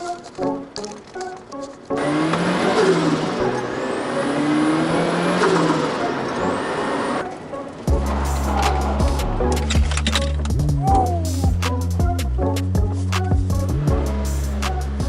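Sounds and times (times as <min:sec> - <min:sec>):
car engine revving: 0:02.0 - 0:10.6, 0:13.6 - 0:15.0.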